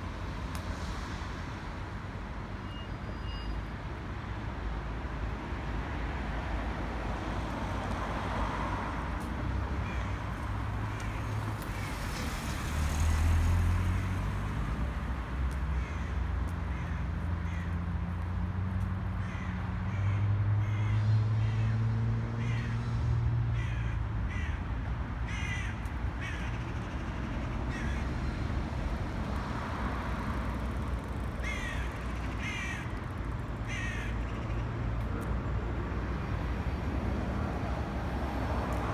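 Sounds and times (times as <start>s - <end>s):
low traffic rumble: 3.6s - 38.9s
vehicle passing: 10.5s - 15.3s
crows cawing: 15.7s - 17.8s, 19.2s - 21.8s, 22.4s - 22.8s, 23.6s - 24.6s, 25.3s - 28.2s, 31.2s - 34.6s.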